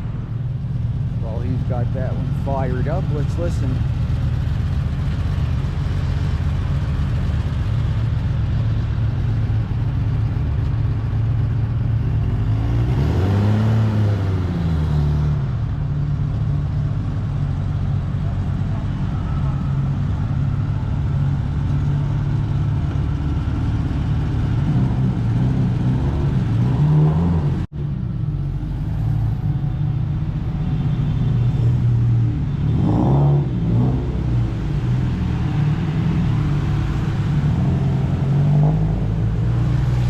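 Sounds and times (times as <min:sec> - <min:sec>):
car engine idling: 0:00.0 - 0:12.5.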